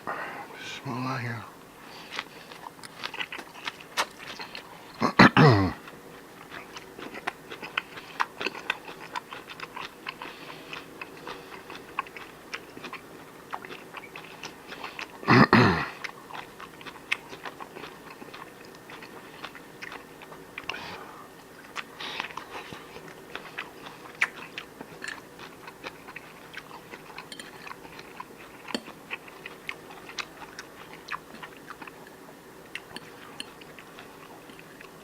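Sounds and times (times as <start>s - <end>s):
person chewing food: 1.2s - 35.0s.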